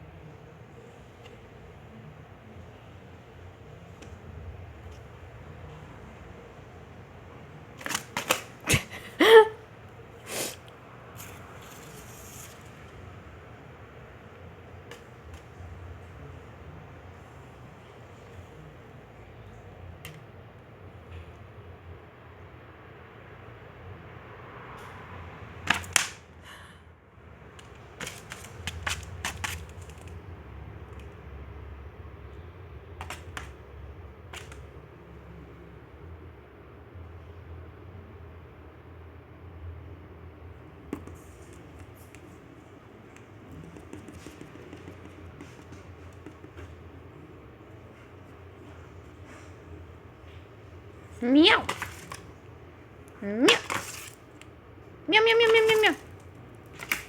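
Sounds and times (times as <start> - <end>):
light taps: 43.1 - 46.8.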